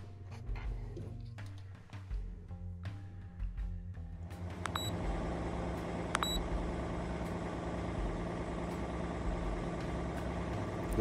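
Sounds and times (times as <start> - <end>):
diesel engine idling: 4.2 - 11.0
short electronic beeps: 4.6 - 5.0, 6.1 - 6.4.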